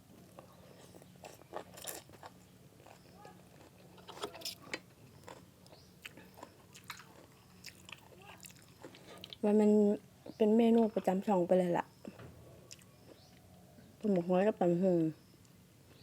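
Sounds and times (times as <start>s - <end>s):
person chewing food: 0.3s - 9.4s, 12.7s - 13.5s.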